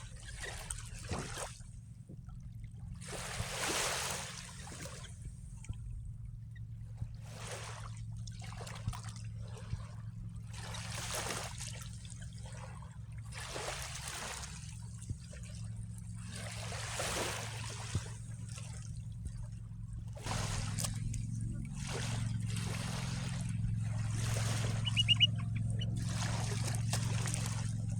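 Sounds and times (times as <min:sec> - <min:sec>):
waves lapping: 0:03.0 - 0:05.0, 0:13.3 - 0:14.8, 0:16.3 - 0:18.8, 0:20.2 - 0:27.9
steady low hum: 0:14.1 - 0:27.9.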